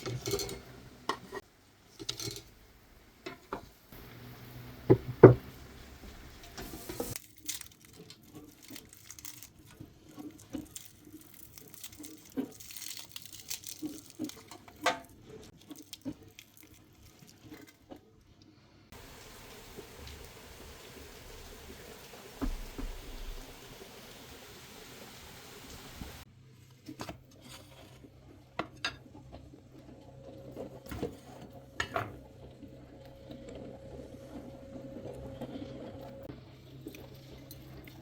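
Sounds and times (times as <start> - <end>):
parchment paper crinkling and tearing: 7.1 - 17.9.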